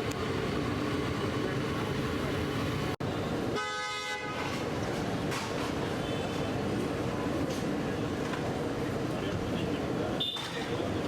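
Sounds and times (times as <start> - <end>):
roadside traffic noise: 0.0 - 11.0
vehicle horn: 3.6 - 4.4.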